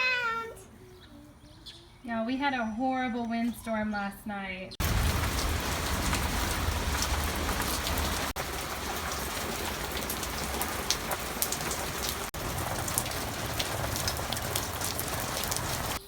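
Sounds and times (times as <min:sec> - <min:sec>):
rain falling: 0:04.8 - 0:16.0
raindrop ticks: 0:04.8 - 0:16.0.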